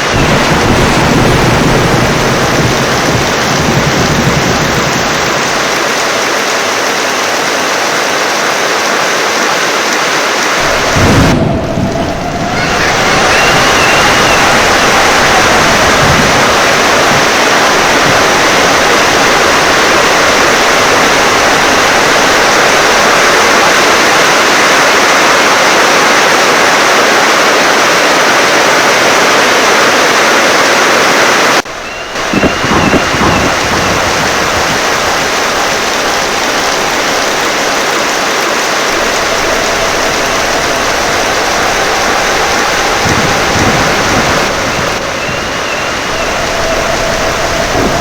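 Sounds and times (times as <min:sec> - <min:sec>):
heavy wind-driven rain: 0:00.0 - 0:48.0
low rumbles: 0:10.6 - 0:23.3, 0:31.6 - 0:48.0.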